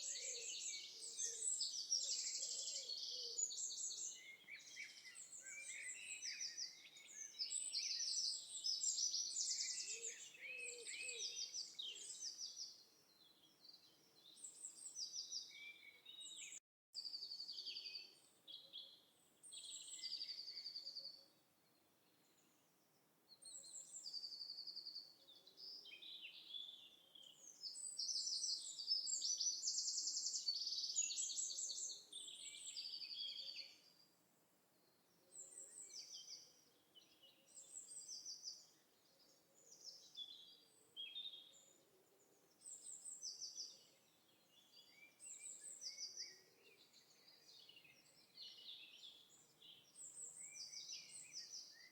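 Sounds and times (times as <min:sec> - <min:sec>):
birds singing: 0:00.0 - 0:16.6, 0:34.8 - 0:51.9.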